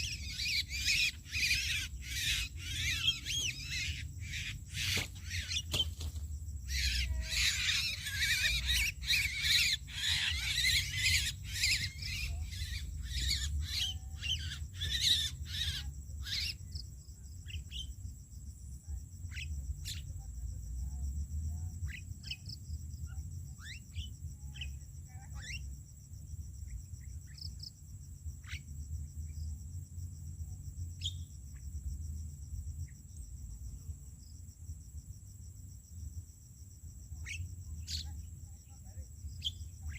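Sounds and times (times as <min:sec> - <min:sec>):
starlings calling harshly: 0:00.0 - 0:06.0, 0:06.7 - 0:16.6
cricket trilling: 0:00.0 - 0:39.9.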